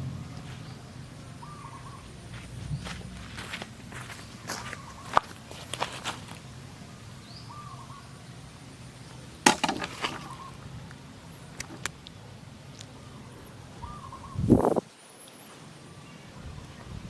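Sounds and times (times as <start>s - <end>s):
low background noise: 0.0s - 17.0s
bird chirp: 0.5s - 3.2s, 4.1s - 5.3s, 7.0s - 8.4s, 10.2s - 10.6s, 12.9s - 17.0s.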